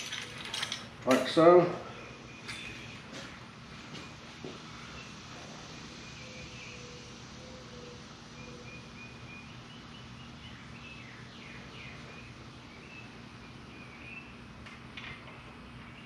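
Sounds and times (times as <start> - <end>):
steady low background hum: 0.0 - 16.0.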